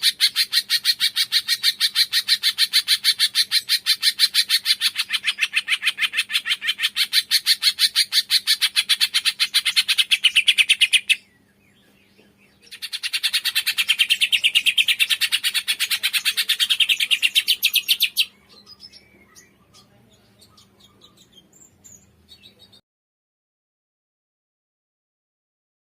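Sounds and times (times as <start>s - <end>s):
faint bird chirps: 0.0s - 22.8s
songbird chattering trill: 0.0s - 22.8s.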